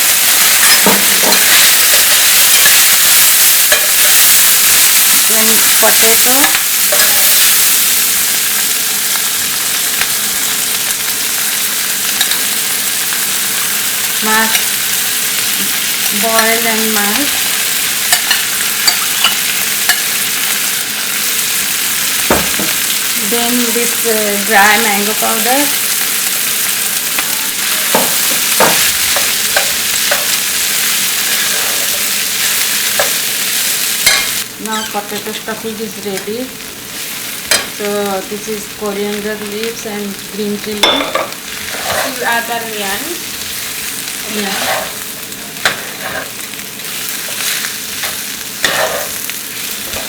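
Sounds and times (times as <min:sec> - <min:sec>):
food sizzling in oil: 0:00.0 - 0:50.0
spatula knocking on pan: 0:27.9 - 0:28.9.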